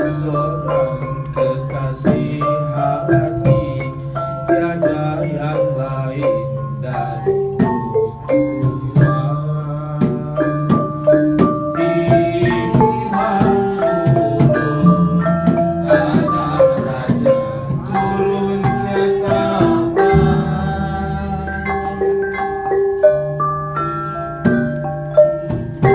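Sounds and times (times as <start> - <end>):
gamelan struck metal keys: 0.0 - 25.9
low held tone: 12.0 - 25.3.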